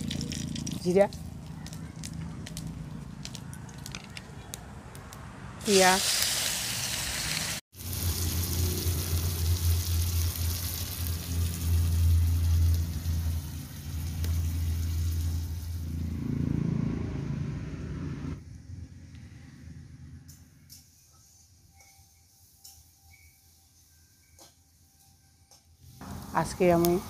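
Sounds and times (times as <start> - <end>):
onions sizzling in hot oil: 5.6 - 16.0, 25.8 - 27.0.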